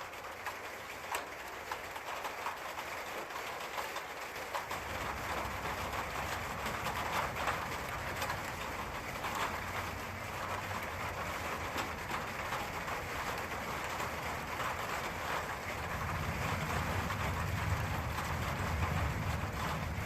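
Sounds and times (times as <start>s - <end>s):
rain hiss: 0.0s - 20.0s
thunder rumbling: 4.8s - 20.0s.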